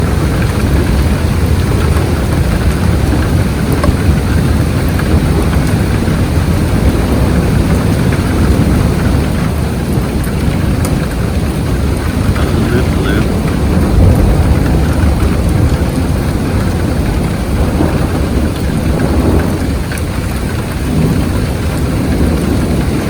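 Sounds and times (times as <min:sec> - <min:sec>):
low thunder rumble: 0:00.0 - 0:23.0
steady rain: 0:00.0 - 0:23.0.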